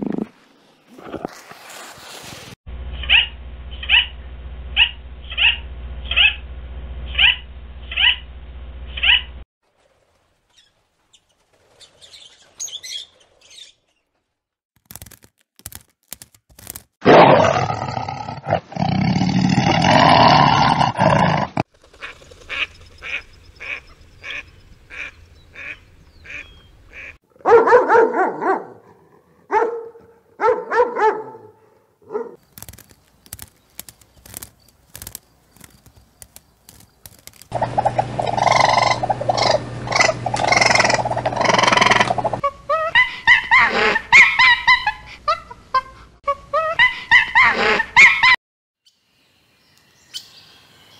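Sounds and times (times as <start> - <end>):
animal calls: 3.0 - 4.2, 4.8 - 6.4, 7.1 - 8.2, 9.0 - 9.3, 37.5 - 45.6
macaws squawking: 3.0 - 4.2, 4.8 - 6.4, 7.2 - 8.2, 9.0 - 9.3, 21.8 - 27.2, 37.5 - 45.4
lion growling: 37.6 - 42.4.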